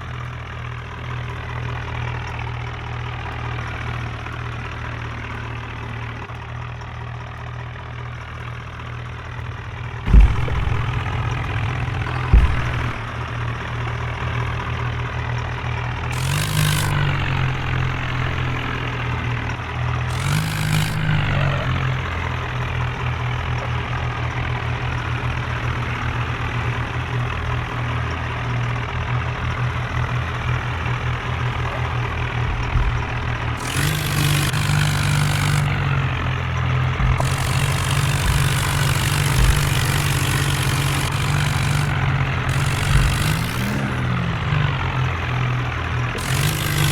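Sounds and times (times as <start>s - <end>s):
tractor engine running: 0.0s - 46.9s
sharp knocks: 10.1s - 13.6s, 16.1s - 19.1s, 20.1s - 21.9s, 31.5s - 36.3s, 36.9s - 44.2s.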